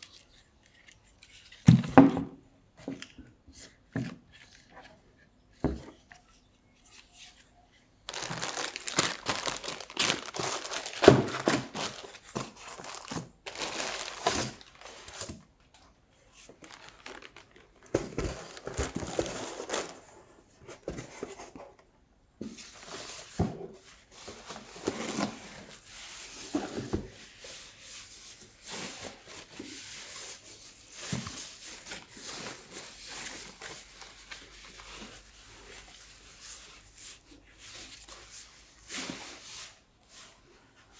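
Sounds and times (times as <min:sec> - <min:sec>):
plastic wrapping crinkling: 0:08.1 - 0:15.4, 0:16.3 - 0:20.1, 0:27.3 - 0:38.6.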